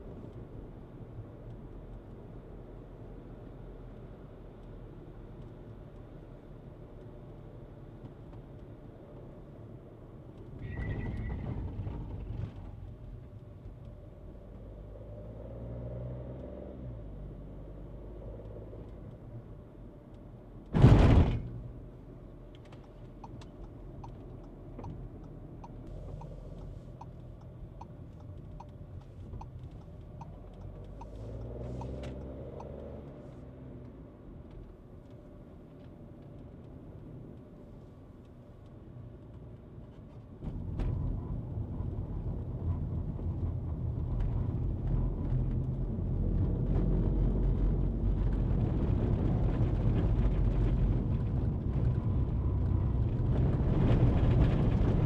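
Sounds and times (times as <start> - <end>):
car engine and road noise: 0.0 - 55.0
loud thump: 20.7 - 21.6
light regular ticking: 22.8 - 32.0.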